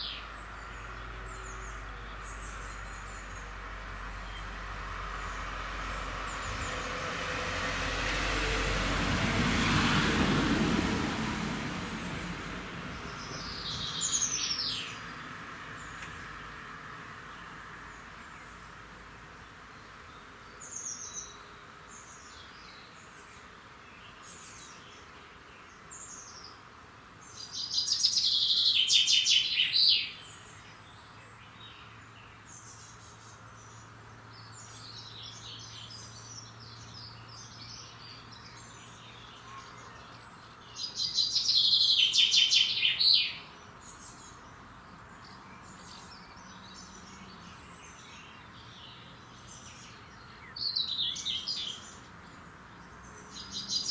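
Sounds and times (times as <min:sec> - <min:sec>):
songbirds singing: 0:00.0 - 0:53.9.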